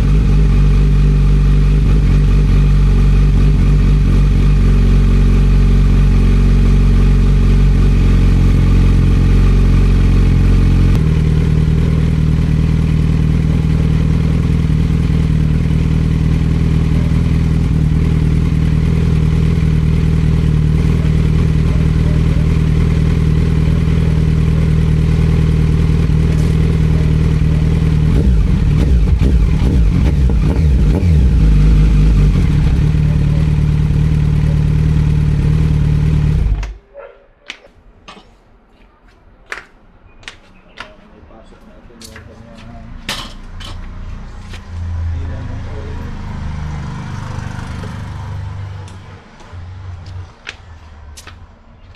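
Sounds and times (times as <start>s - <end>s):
motorcycle engine idling: 0.0s - 36.8s.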